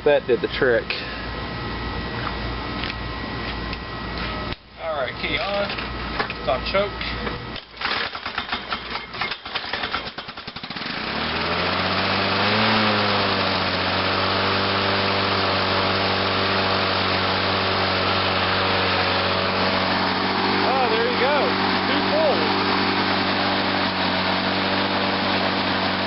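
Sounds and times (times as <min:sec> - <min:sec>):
lawn mower engine starting and running: 0:07.5 - 0:26.0.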